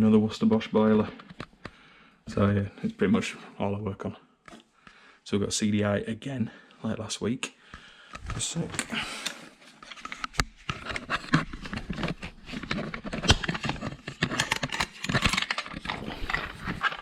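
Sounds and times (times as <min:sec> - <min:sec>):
metal tools clicking and scraping: 0:13.2 - 0:17.0.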